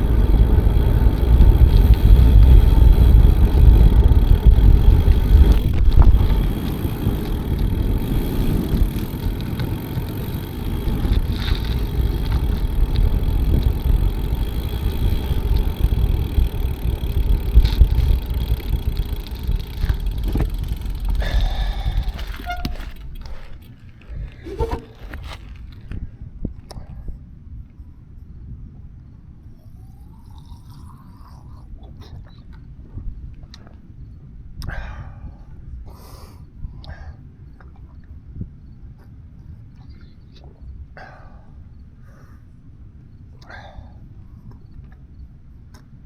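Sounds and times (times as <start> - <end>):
wind rushing over microphone: 0.0 - 23.3
bicycle clicks: 0.0 - 26.0
bicycle tyre rumble: 0.0 - 26.1.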